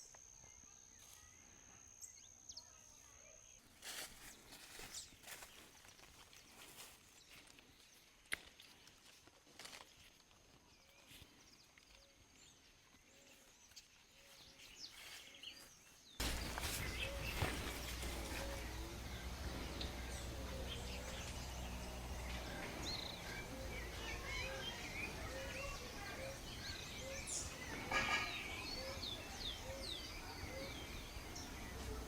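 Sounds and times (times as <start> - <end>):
birds chirping: 9.6 - 32.0.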